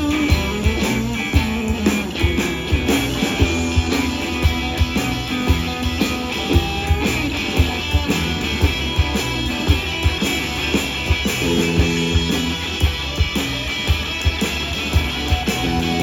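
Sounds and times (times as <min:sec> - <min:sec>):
electric guitar: 0:00.0 - 0:16.0
steady drum beat: 0:00.0 - 0:16.0.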